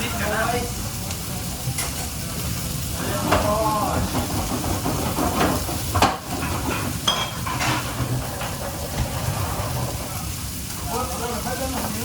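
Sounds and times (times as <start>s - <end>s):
frying hiss: 0.0s - 12.0s
pans and utensils clinking: 1.6s - 12.0s.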